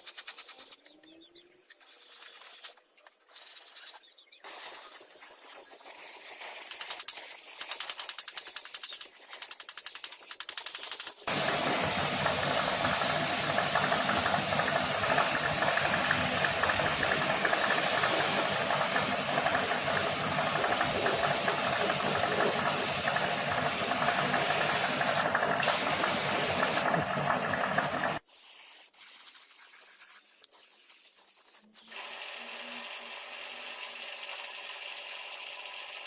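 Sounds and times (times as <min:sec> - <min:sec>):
loud hiss: 0:04.4 - 0:07.8, 0:11.3 - 0:27.2
motor running: 0:11.3 - 0:28.2, 0:31.8 - 0:36.0.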